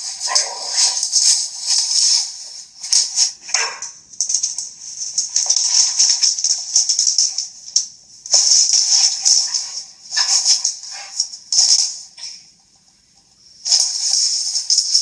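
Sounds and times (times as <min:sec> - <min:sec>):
background music with shaker rhythm: 0:04.0 - 0:15.0.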